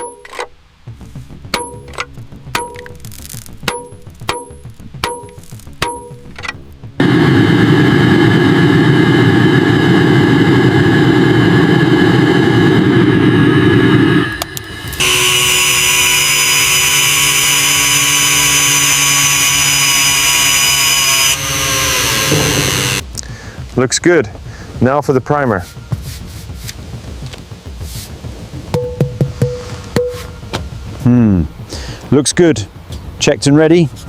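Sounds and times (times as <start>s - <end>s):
deep rough power tool on metal: 7.0s - 23.0s
high-pitched hissing power tool: 7.0s - 23.0s.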